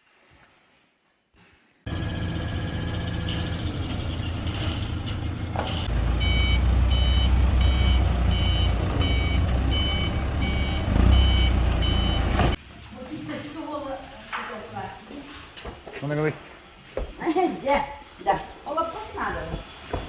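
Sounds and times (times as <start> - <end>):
truck engine running: 1.9 - 12.6
reversing alarm beeping: 2.0 - 12.6.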